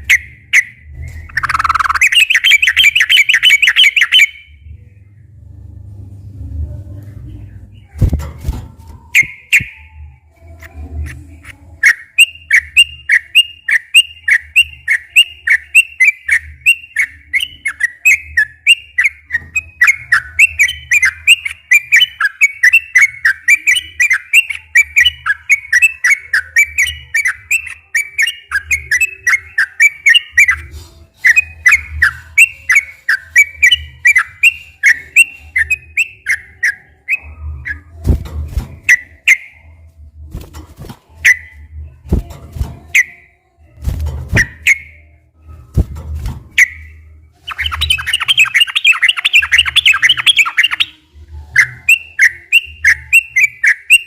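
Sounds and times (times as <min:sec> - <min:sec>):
bulbul singing bubbly whistled notes: 0:00.0 - 0:04.6, 0:09.1 - 0:10.1, 0:46.6 - 0:51.0, 0:51.6 - 0:54.0.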